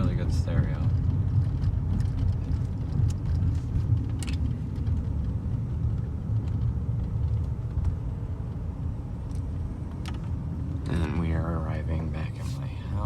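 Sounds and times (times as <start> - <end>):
car engine rumble from inside: 0.0 - 13.0
road noise: 0.0 - 13.0.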